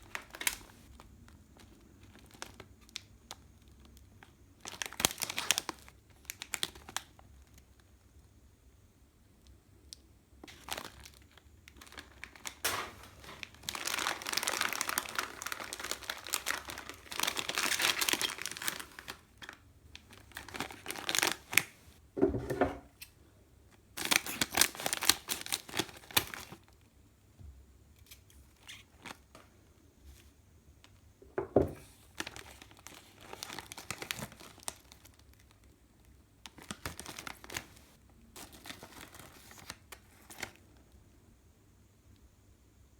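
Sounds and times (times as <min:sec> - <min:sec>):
plastic packaging crinkling: 0:00.0 - 0:07.9, 0:10.4 - 0:22.0, 0:23.9 - 0:26.8, 0:28.5 - 0:29.5, 0:31.8 - 0:35.8, 0:36.4 - 0:40.8.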